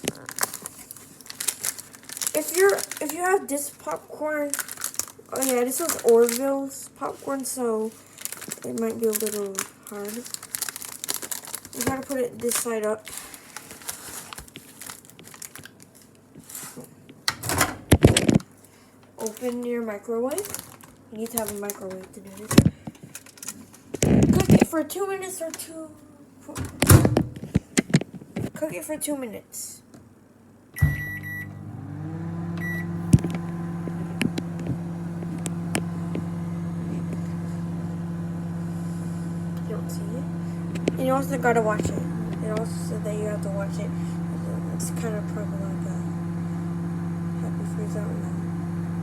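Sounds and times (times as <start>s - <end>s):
paper bag crinkling: 0.0s - 6.6s, 7.4s - 16.1s, 20.4s - 24.6s
microwave beeps: 30.8s - 37.3s
microwave oven humming: 30.8s - 49.0s.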